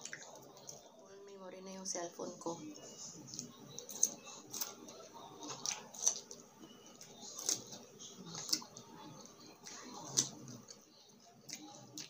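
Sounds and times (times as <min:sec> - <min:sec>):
crisp wet chewing crunches: 0:05.4 - 0:10.8.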